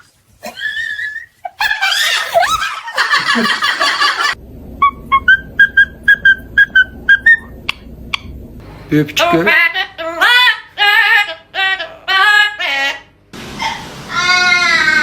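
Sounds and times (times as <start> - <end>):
parrot squawking and whistling: 4.8 - 8.3.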